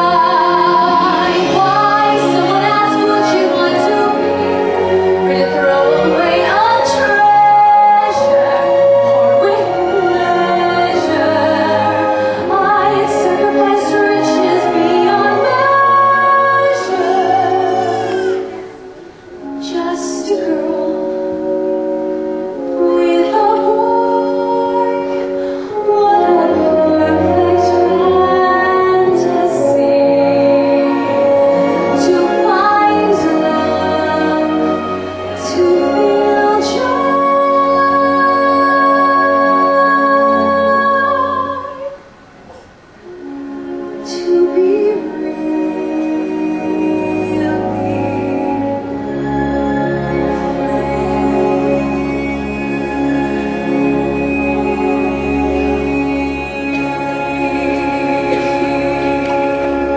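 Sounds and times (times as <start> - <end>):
woman singing: 0.0 - 21.9, 22.5 - 42.1, 43.9 - 59.9
musical accompaniment: 0.0 - 59.9.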